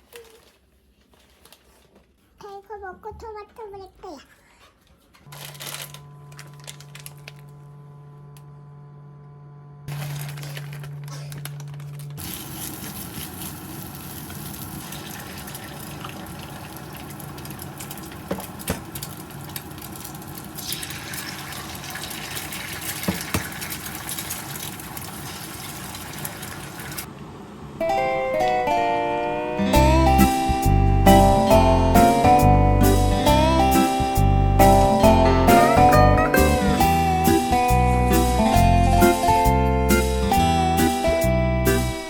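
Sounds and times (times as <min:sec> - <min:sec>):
electric hum: 0:05.3 - 0:22.7
water running into sink: 0:12.2 - 0:27.1.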